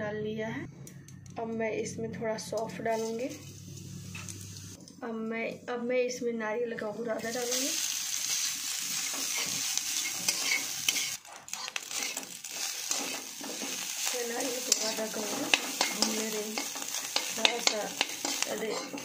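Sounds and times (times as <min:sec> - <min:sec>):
food sizzling in a pan: 0:02.9 - 0:04.8, 0:07.2 - 0:19.0.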